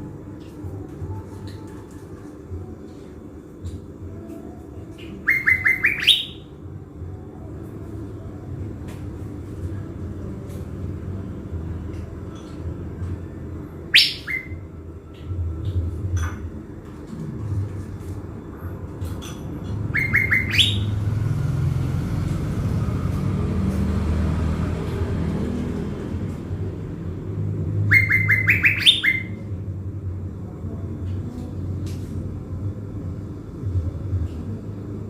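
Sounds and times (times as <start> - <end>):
bird calling: 5.0 - 6.5, 13.9 - 14.6, 19.9 - 21.0, 27.9 - 29.4.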